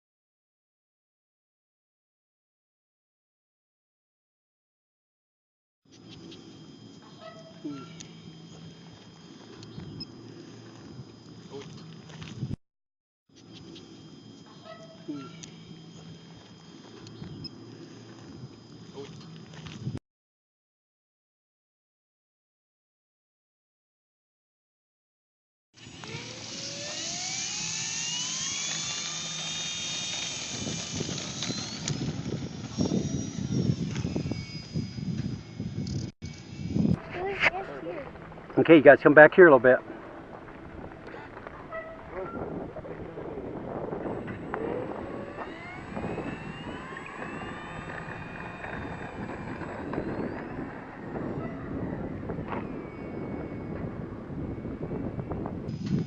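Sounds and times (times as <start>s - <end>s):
electric motor whine: 5.9s - 12.6s, 13.4s - 20.0s, 25.8s - 56.0s
wind buffeting microphone: 30.4s - 38.9s, 40.0s - 56.0s.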